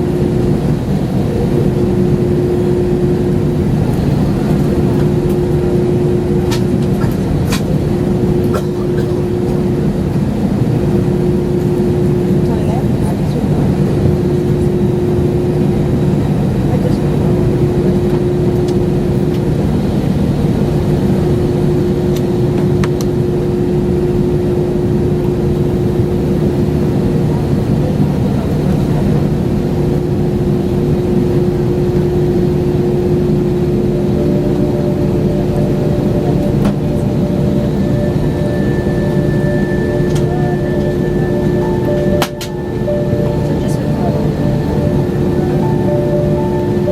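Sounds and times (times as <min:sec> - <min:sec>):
higher tone: 0:00.0 - 0:16.7, 0:31.3 - 0:46.9
jet engine cabin drone: 0:00.0 - 0:46.9.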